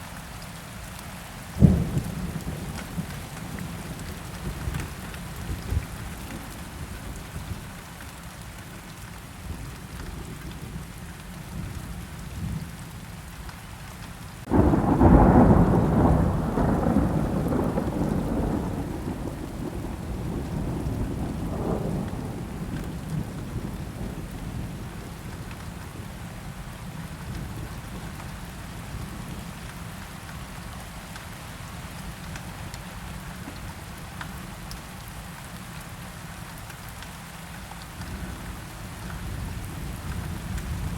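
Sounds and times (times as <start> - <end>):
steady rain falling: 0.0 - 40.9
thunderclap rumbling: 14.5 - 26.2.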